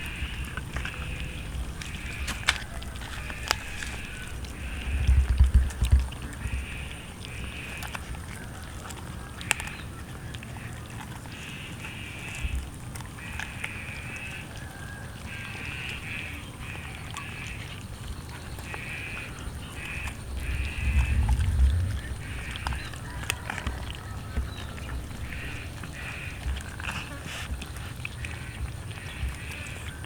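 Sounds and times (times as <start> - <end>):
chewing clicks: 0.0 - 30.0
low rumble: 19.8 - 25.3.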